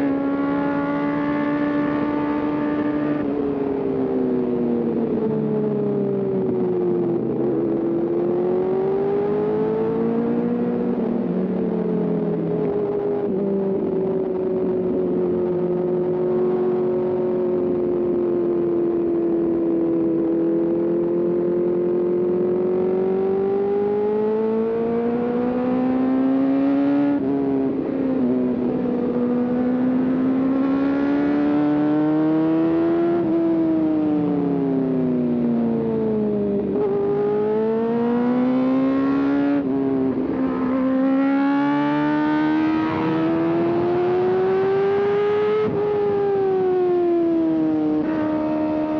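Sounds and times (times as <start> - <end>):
motorcycle engine revving: 36.4 - 48.9.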